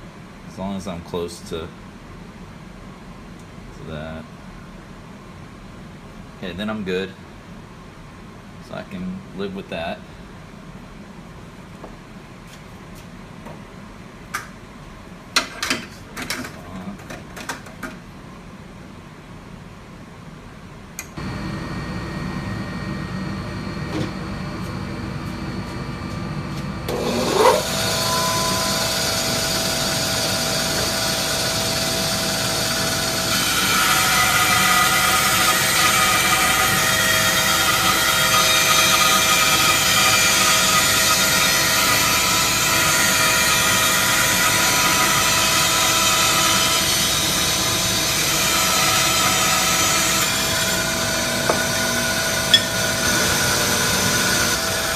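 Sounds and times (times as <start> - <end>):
bandsaw blade cutting wood: 26.9 - 54.9
bandsaw running: 26.9 - 54.9.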